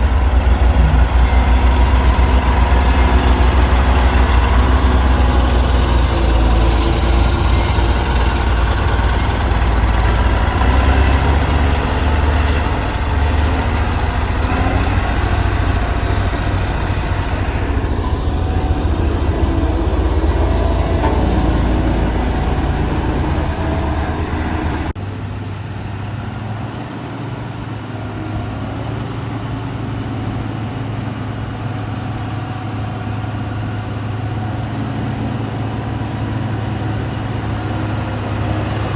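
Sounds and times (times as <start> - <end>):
heavy diesel engine rumbling: 0.0 - 38.9.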